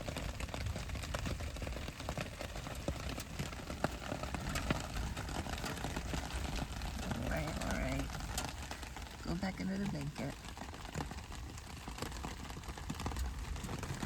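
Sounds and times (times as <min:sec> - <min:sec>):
rain pattering: 0:00.0 - 0:14.0
steady low rumble: 0:04.5 - 0:11.9.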